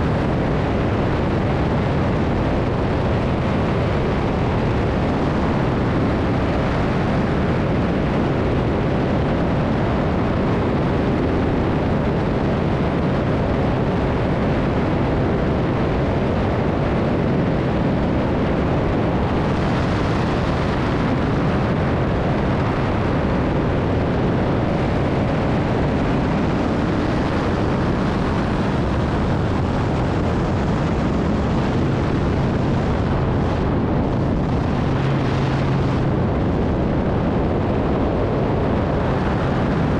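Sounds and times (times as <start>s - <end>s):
wind rushing: 17.0s - 39.9s.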